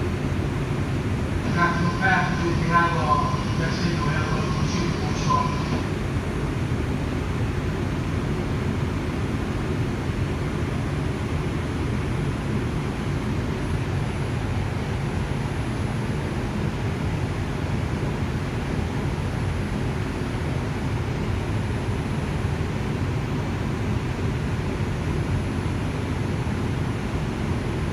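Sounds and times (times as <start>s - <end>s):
subway car wheels rumbling: 0.0s - 7.9s.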